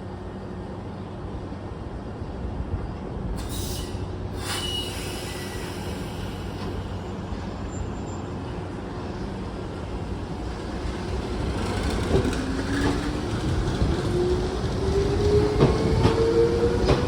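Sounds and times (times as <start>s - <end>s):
electric train rumbling: 0.0s - 17.0s
high squeal: 3.4s - 8.4s.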